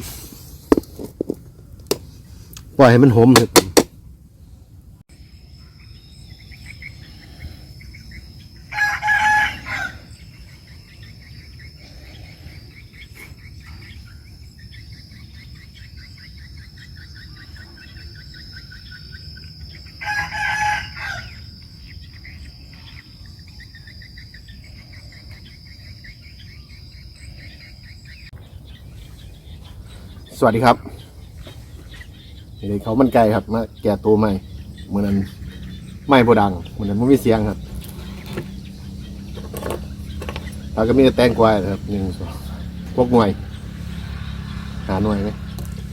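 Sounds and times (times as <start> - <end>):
faint chirping: 4.0 - 45.9
rooster crowing: 8.7 - 10.3, 19.9 - 21.5.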